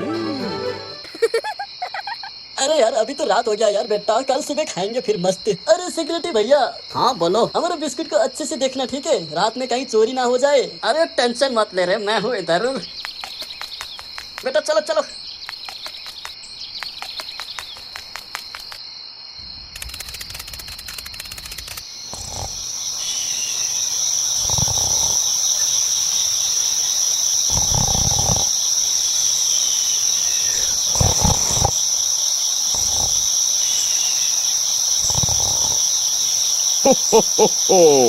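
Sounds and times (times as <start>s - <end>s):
crickets chirring: 0.0s - 38.0s
rapid clicking: 19.8s - 21.8s
owl hooting: 35.0s - 38.0s.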